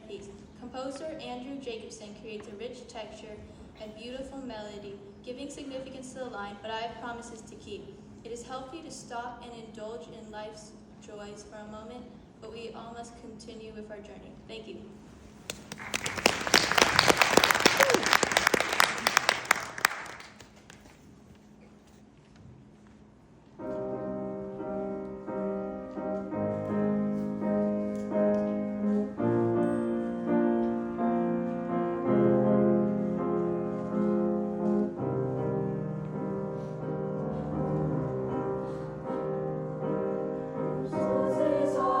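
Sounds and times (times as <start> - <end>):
piano playing slow chords: 23.6 - 42.0.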